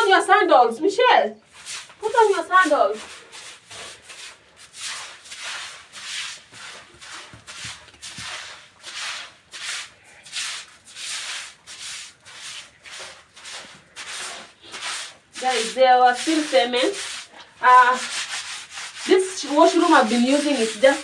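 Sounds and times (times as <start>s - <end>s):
brush scrubbing a floor: 0.0s - 0.5s, 1.5s - 21.0s.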